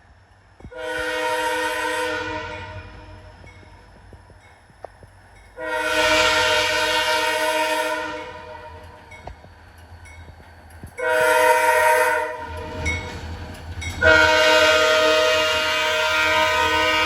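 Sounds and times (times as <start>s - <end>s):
locomotive air horn blasts: 0.7s - 3.3s, 5.6s - 8.8s, 11.0s - 12.8s, 14.0s - 17.0s.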